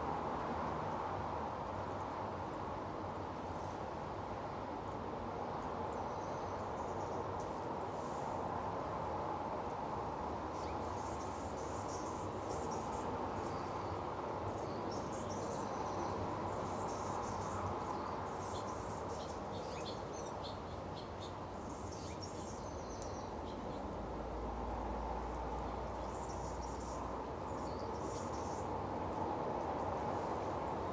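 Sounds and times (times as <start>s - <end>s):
small birds chirping: 10.4s - 24.4s, 25.3s - 30.9s.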